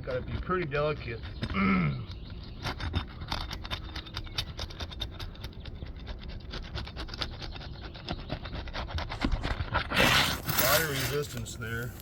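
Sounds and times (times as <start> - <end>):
shingle crackling as pried up: 9.2 - 12.0.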